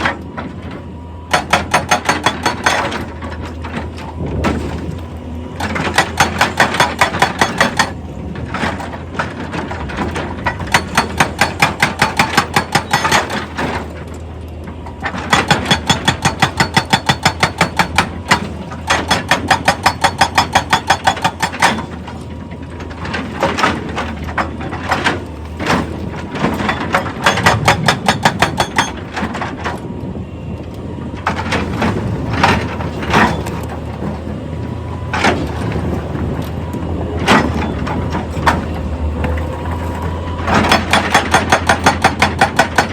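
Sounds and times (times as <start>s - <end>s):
hydraulic rock breaker hammering: 0.0s - 5.0s, 5.6s - 14.0s, 14.9s - 29.8s, 40.4s - 42.9s
engine hum: 0.0s - 42.9s.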